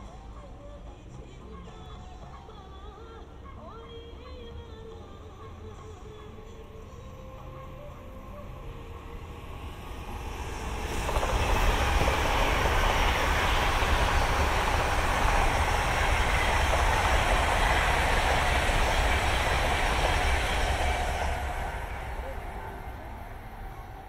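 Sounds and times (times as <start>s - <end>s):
electric train passing: 4.3s - 24.0s
wheels on rail: 6.0s - 24.0s
rushing air: 9.4s - 24.0s.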